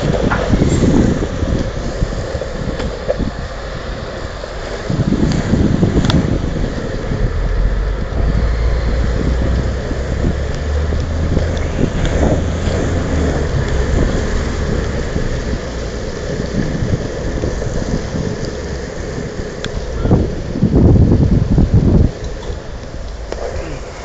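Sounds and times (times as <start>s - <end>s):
longboard wheels rolling on wet pavement: 0.0s - 24.0s
wind buffeting microphone: 0.0s - 24.0s.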